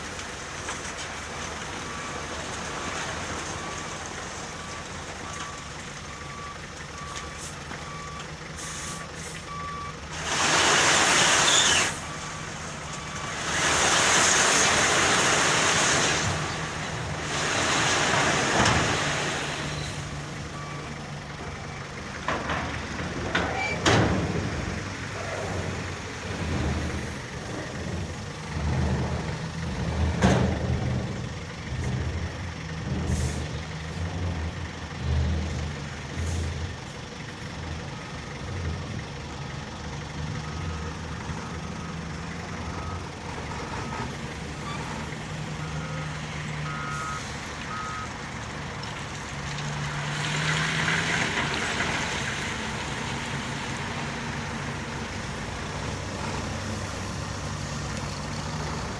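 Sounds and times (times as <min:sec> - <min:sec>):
truck diesel engine revving: 0:00.0 - 0:58.9
reversing beeper beeps: 0:45.6 - 0:48.1.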